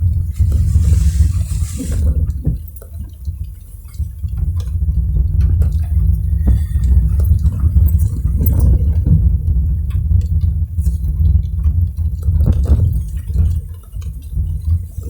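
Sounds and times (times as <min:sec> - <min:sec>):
car driving on wet road: 0:00.0 - 0:02.6
raindrops ticking on car: 0:00.0 - 0:15.0.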